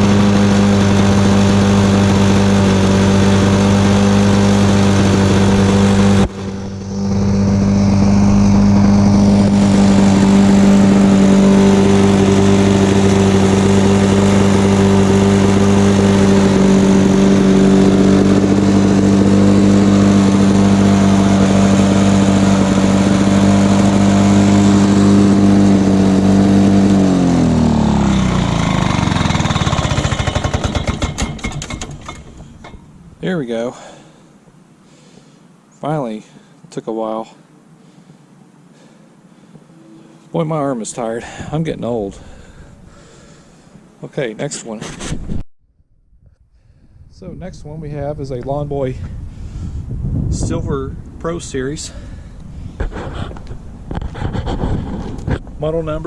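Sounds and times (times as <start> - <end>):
push mower engine running: 0.0 - 34.2.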